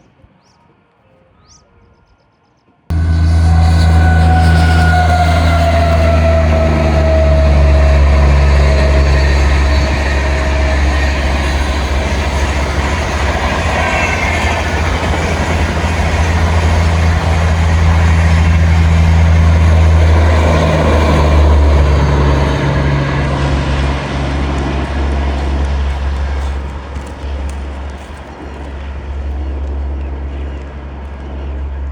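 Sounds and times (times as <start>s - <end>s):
falling tone: 2.9s - 25.8s
train passing close by: 2.9s - 31.9s.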